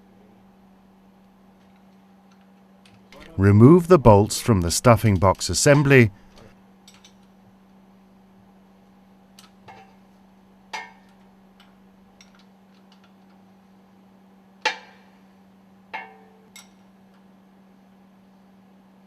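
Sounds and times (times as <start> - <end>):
steady low hum: 3.2 - 6.4.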